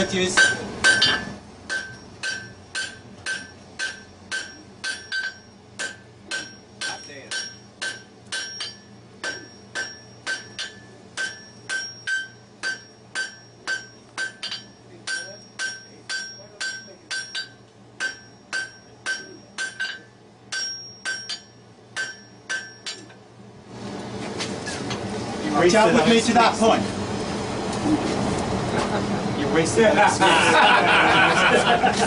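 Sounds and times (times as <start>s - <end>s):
hammer striking iron on anvil: 0.3s - 23.2s.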